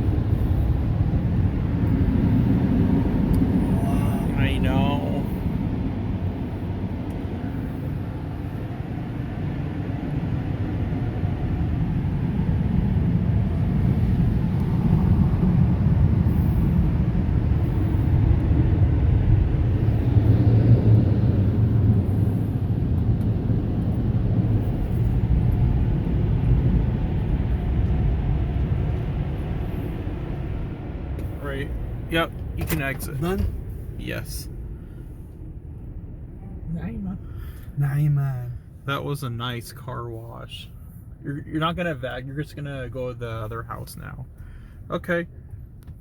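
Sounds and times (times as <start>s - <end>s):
car wash dryer blowers rumbling: 0.0s - 34.0s.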